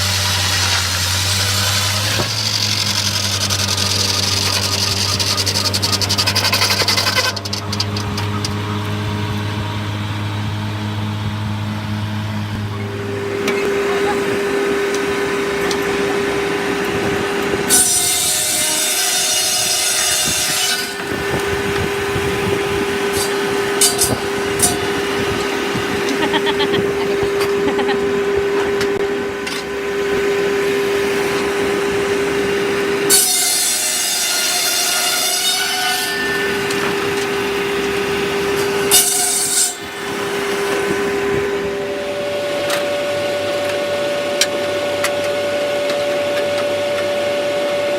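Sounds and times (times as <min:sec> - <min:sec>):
saw blade cutting wood: 0:00.0 - 0:08.8, 0:13.0 - 0:41.7
sawmill humming: 0:00.0 - 0:47.9.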